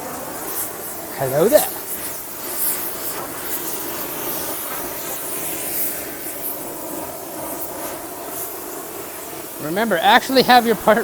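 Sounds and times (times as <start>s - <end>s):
gas torch flame hissing: 0.0s - 11.0s.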